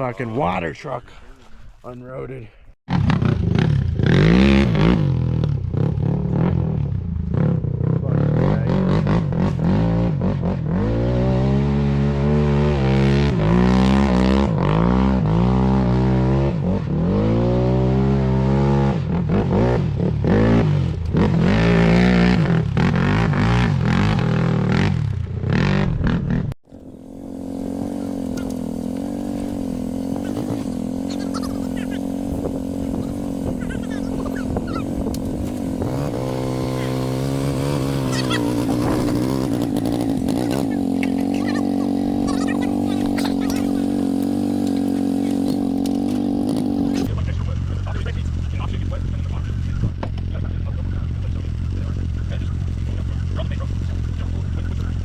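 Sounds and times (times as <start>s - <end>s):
car engine revving: 2.9s - 54.9s
steady engine hum: 16.5s - 55.0s.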